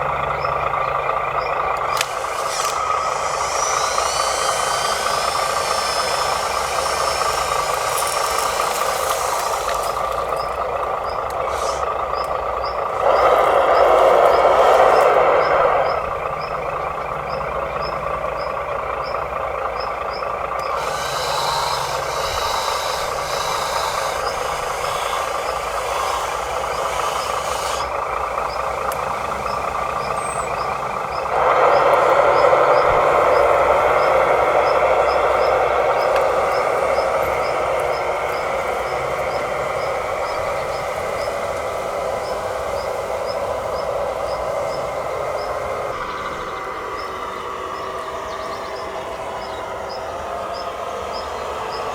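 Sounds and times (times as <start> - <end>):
small electric motors whirring: 1.6 - 16.9, 20.3 - 46.0.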